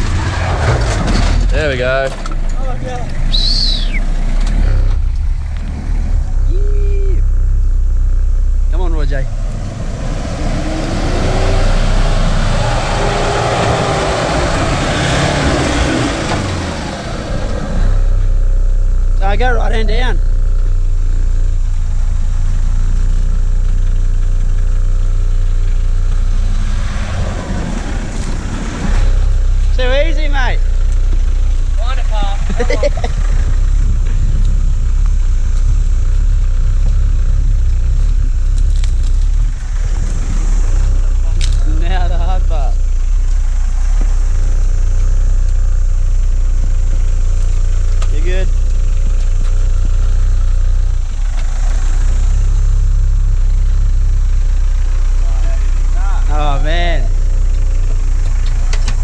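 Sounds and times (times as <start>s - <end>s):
dense rush of noise: 0.0s - 23.6s
engine working under load: 0.0s - 59.0s.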